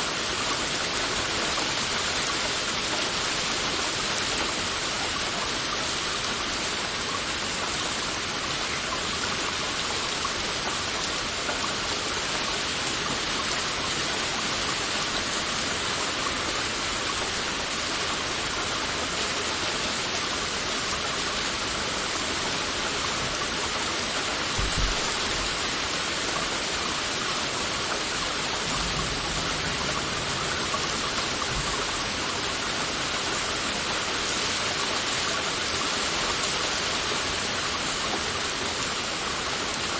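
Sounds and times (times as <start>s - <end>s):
heavy rain falling: 0.0s - 39.9s
low thump: 24.6s - 25.4s.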